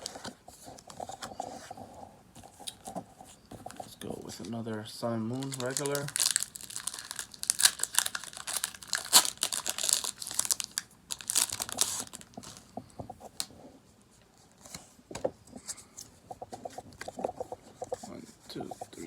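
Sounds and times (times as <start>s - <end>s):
foil wrapper crinkling and tearing: 5.3s - 12.7s
faint rustles and clicks: 10.1s - 19.0s.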